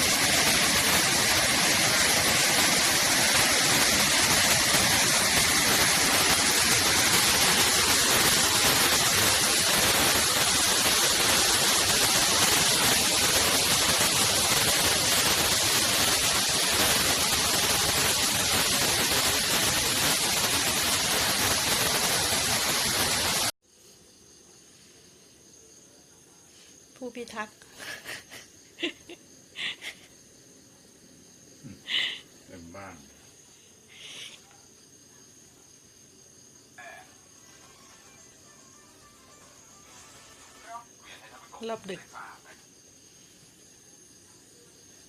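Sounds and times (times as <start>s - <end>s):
waterfall roaring: 0.0s - 23.5s
faint insects chirping: 0.0s - 45.0s.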